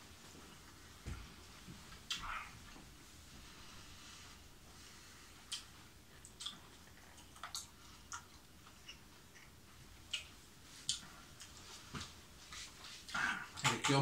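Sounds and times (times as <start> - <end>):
person chewing wet mouth sounds: 5.4 - 11.6.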